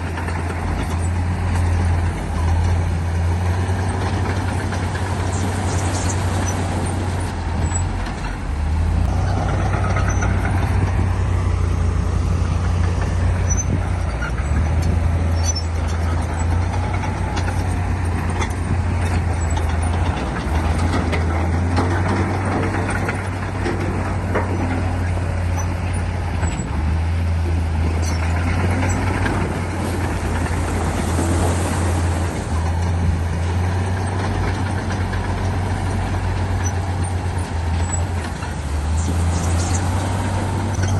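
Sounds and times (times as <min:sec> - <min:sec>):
clanks and rattles: 0:00.0 - 0:40.9
heavy diesel engine droning: 0:00.0 - 0:40.9.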